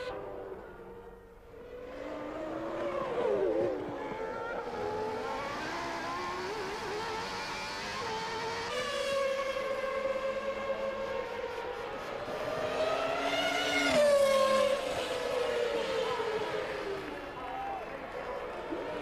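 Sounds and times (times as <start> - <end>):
racing car engines: 0.0 - 19.0.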